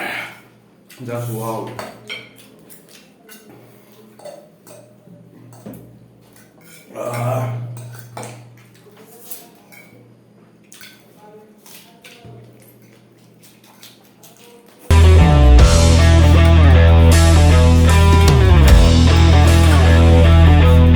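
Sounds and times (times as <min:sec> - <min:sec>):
cutlery scraping against plates: 0:01.2 - 0:14.0
low hum: 0:14.9 - 0:20.9.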